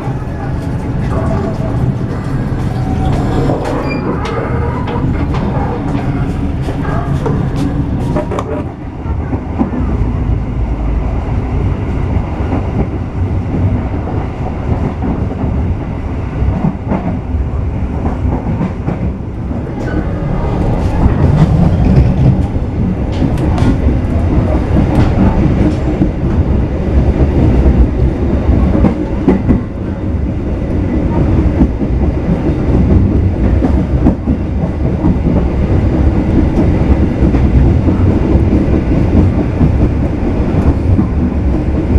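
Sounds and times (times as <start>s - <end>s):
train rumbling: 0.0s - 41.9s
wheels clattering over rails: 0.4s - 8.7s.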